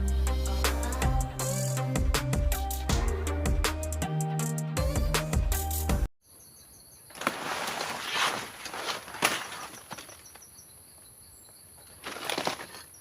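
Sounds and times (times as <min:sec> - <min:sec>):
rustling and scuffing: 0:07.1 - 0:10.5.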